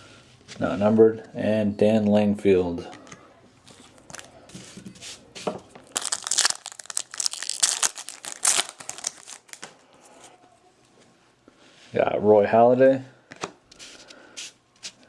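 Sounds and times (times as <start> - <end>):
foil wrapper tearing and crinkling: 3.7 - 4.4, 5.8 - 9.7.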